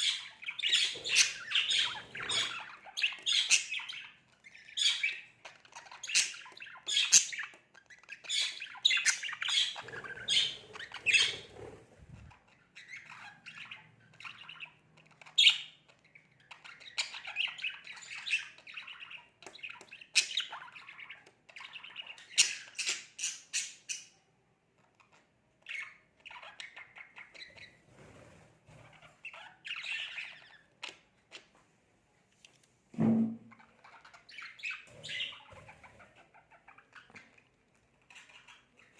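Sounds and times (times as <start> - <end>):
budgerigar chattering and squawking: 0.0 - 15.8, 33.8 - 37.4.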